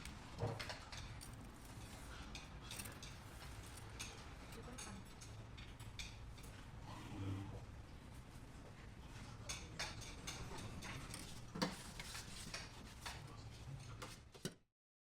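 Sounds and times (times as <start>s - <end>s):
low room hum: 0.0s - 14.4s
tableware clinking on dishes: 9.4s - 11.8s.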